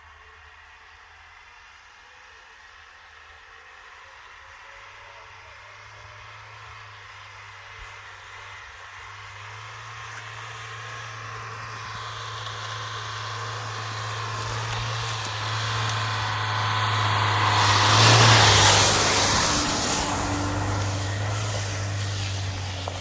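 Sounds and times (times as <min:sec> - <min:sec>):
low engine hum: 0:03.2 - 0:23.0
car passing by: 0:09.2 - 0:23.0.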